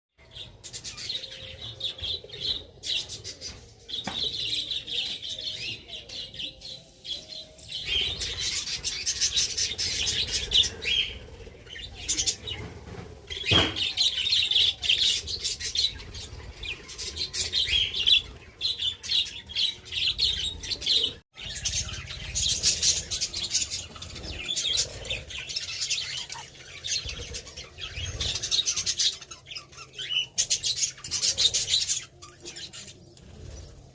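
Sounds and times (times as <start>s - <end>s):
budgerigars chattering and chirping: 19.9s - 33.7s.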